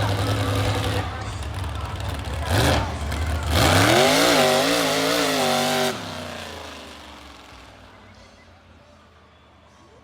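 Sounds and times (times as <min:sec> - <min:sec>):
truck engine revving hard: 0:00.0 - 0:01.3, 0:02.1 - 0:07.2.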